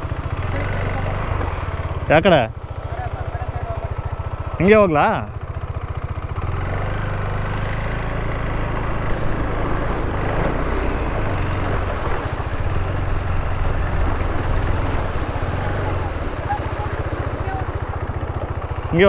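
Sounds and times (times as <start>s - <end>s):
motorcycle engine idling: 0.0s - 19.0s
steady rushing noise: 6.4s - 19.0s.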